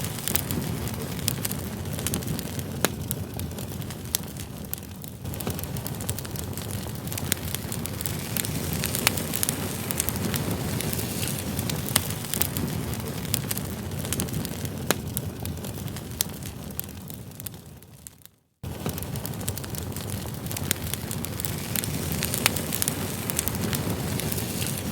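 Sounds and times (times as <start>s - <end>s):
campfire rumble: 0.0s - 24.9s
fire popping and crackling: 0.0s - 24.9s.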